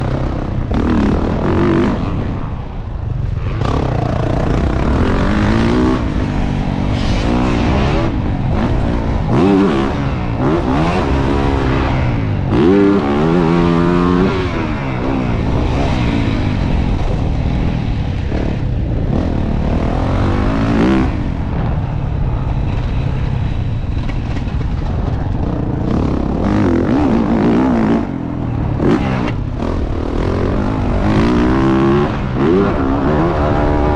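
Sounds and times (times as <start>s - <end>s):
motorcycle engine revving hard: 0.0s - 2.4s, 3.4s - 21.8s, 25.5s - 33.9s.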